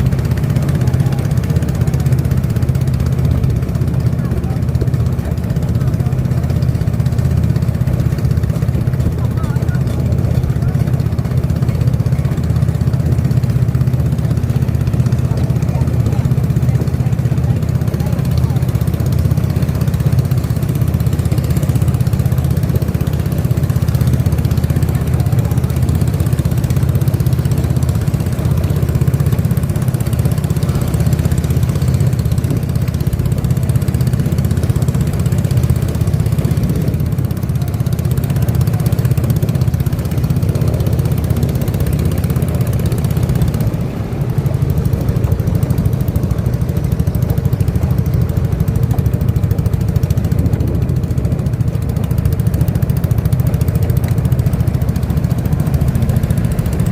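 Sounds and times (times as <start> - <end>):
boat engine running: 0.0 - 56.9.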